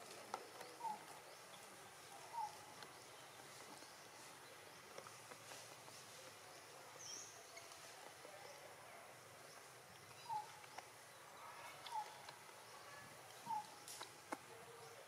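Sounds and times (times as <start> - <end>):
bird chirps: 0.4 - 4.9, 9.4 - 14.0.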